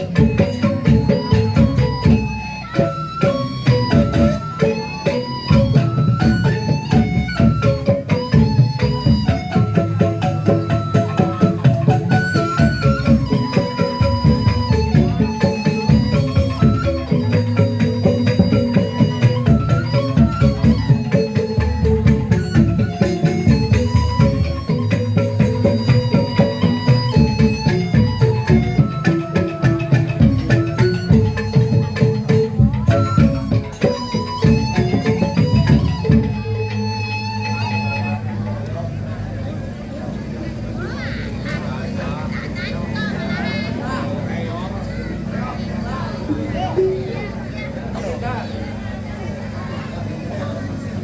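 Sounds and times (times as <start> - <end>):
drums in quick rhythm: 0.0 - 37.3
traditional instrumental music: 0.0 - 51.0.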